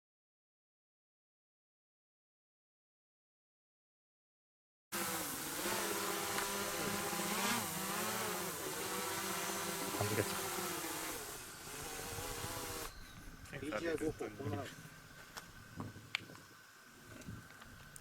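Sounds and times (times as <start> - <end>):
drone motors whining: 5.0 - 13.2.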